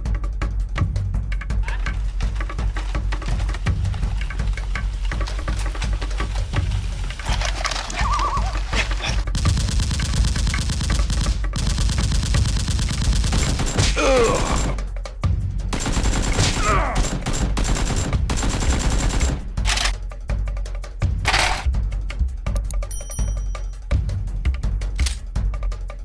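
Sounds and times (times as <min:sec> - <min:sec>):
rapid automatic gunfire: 0:07.3 - 0:14.8, 0:15.7 - 0:20.0
background music with bass: 0:19.3 - 0:26.0.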